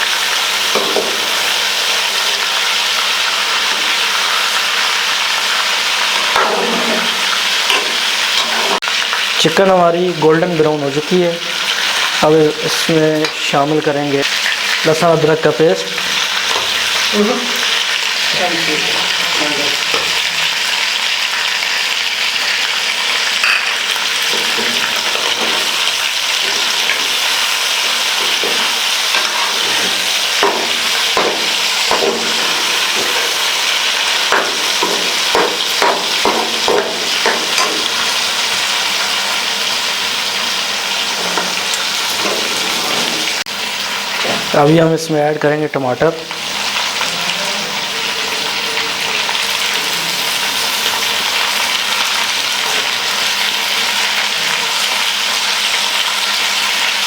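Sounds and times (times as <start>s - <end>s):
chicken sizzling in a wok: 0.0s - 57.0s
metal spoon scraping a pan: 0.6s - 1.6s, 6.0s - 9.1s, 16.0s - 18.4s, 23.2s - 39.1s, 40.9s - 43.4s.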